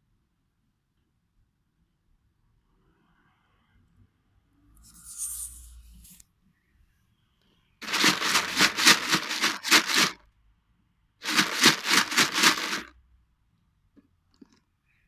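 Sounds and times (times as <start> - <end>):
rattle shaking: 7.8 - 10.2, 11.2 - 12.9.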